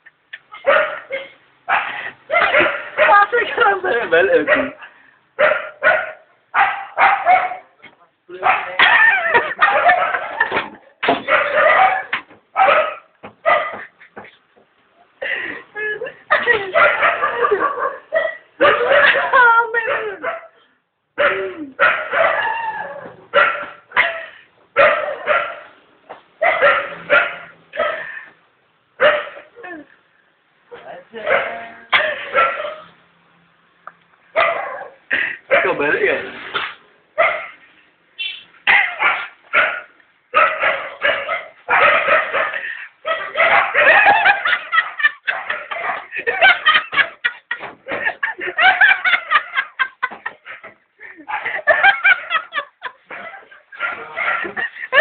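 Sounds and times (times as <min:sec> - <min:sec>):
dog barking: 0:00.6 - 0:03.4, 0:04.4 - 0:04.8, 0:05.4 - 0:07.8, 0:08.4 - 0:13.9, 0:16.6 - 0:20.6, 0:21.2 - 0:25.8, 0:26.4 - 0:28.1, 0:29.0 - 0:29.5, 0:31.2 - 0:33.0, 0:34.3 - 0:36.0, 0:37.2 - 0:37.6, 0:38.7 - 0:47.2, 0:50.5 - 0:55.0
people laughing: 0:08.8 - 0:10.9, 0:15.2 - 0:19.6, 0:43.8 - 0:55.0.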